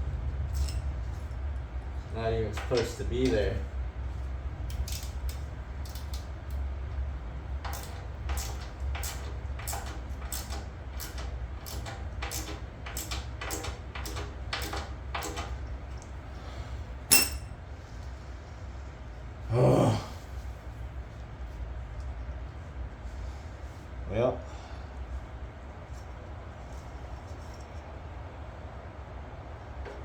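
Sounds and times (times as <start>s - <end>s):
ringing metal clank: 17.1s - 17.6s.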